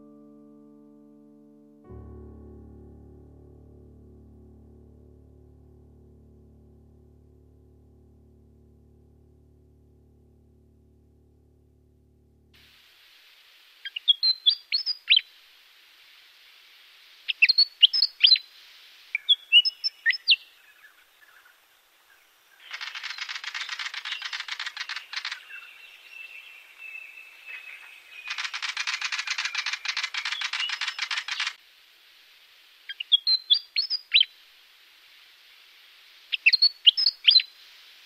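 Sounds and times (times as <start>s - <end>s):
sharp bird chirps: 13.8s - 15.3s, 17.2s - 21.5s, 22.6s - 31.6s, 32.9s - 34.3s, 36.3s - 37.6s.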